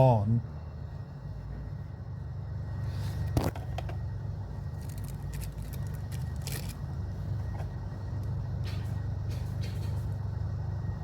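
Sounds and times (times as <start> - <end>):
steady low hum: 0.0 - 11.0
small parts clicking and scraping: 4.7 - 6.8.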